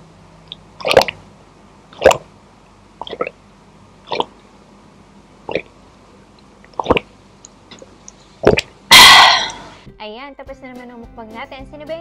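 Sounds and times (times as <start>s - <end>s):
swallowing gulps: 0.8s - 1.2s, 2.0s - 2.3s, 3.0s - 3.4s, 4.0s - 4.4s, 5.5s - 5.7s, 6.7s - 7.1s, 7.8s - 9.7s
loud breathy exhale: 8.9s - 9.8s.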